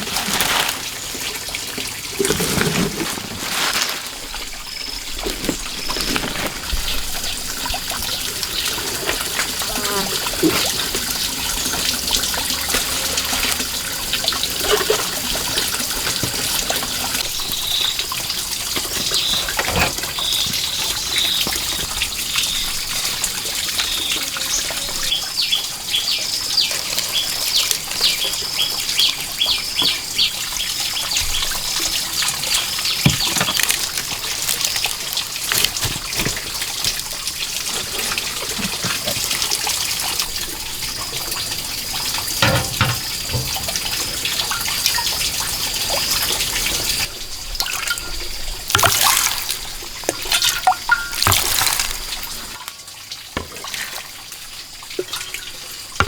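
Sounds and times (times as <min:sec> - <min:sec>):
water running and splashing: 0:00.0 - 0:56.0.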